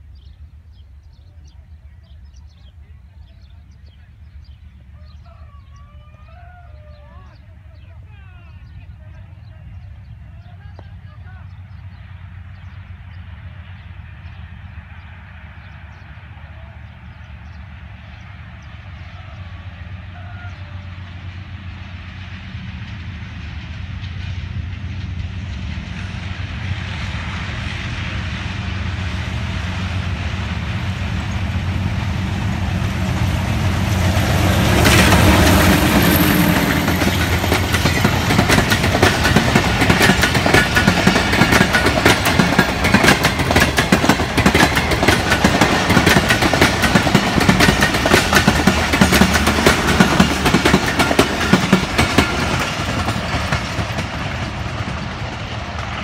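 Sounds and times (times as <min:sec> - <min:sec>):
diesel locomotive engine drone: 0:00.0 - 0:56.0
train wheels clacking on rail joints: 0:33.2 - 0:56.0.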